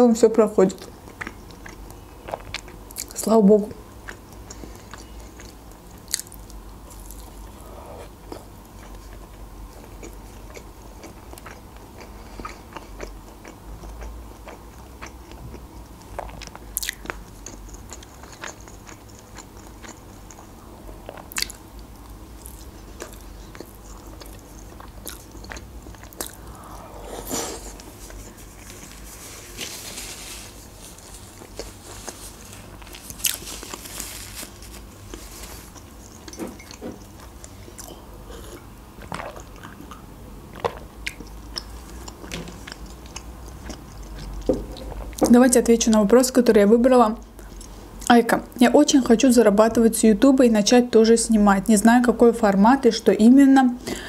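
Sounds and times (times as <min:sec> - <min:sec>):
close chewing with mouth clicks: 0:00.7 - 0:03.2, 0:04.0 - 0:29.0, 0:31.1 - 0:45.3, 0:47.2 - 0:48.1.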